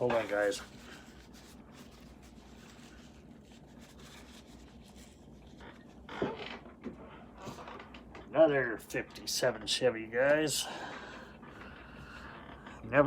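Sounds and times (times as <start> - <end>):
faint rubbing and handling noises: 0.0 - 8.1.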